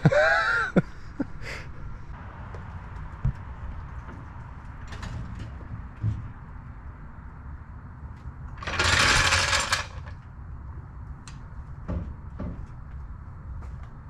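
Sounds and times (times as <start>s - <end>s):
power tool burst: 8.6s - 10.1s.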